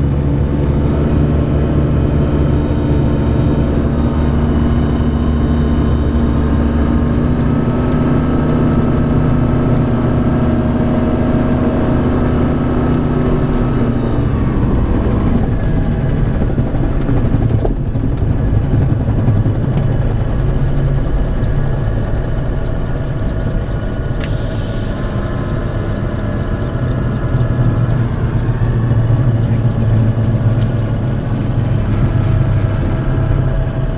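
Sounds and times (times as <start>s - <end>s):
gyroplane engine and rotor drone: 0.0s - 33.9s
sharp click: 21.4s - 24.8s.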